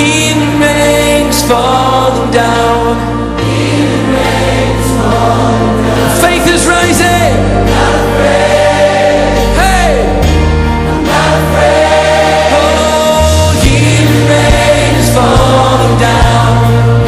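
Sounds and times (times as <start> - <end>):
band playing: 0.0 - 17.0
choir singing: 0.4 - 17.0.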